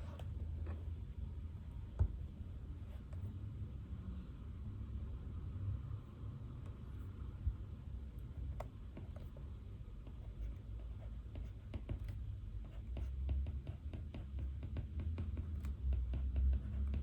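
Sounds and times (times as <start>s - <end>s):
low room hum: 0.0s - 17.0s
pen writing on paper: 8.3s - 9.4s, 10.0s - 17.0s.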